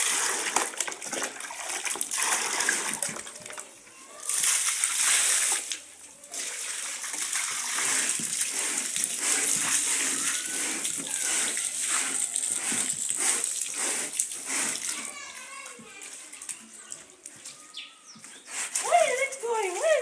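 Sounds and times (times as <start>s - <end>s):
water splashing and sloshing: 0.0s - 17.6s.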